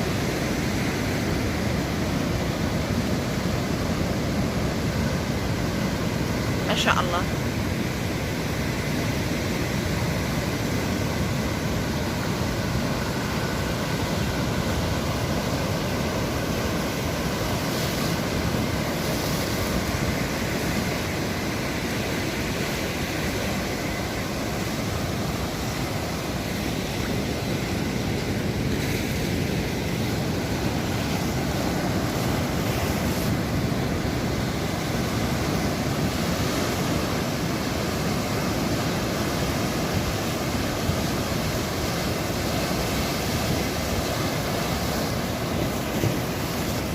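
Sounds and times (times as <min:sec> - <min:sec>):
sea waves washing in: 0:00.0 - 0:46.9.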